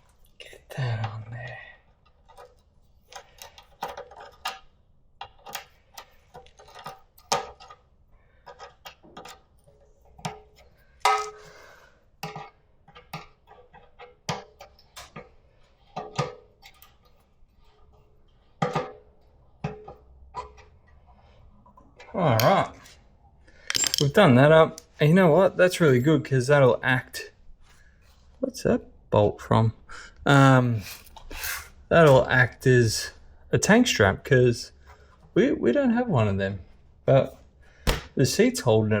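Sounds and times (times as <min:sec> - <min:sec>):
metallic hand tool clicks and clinks: 0:23.7 - 0:24.2.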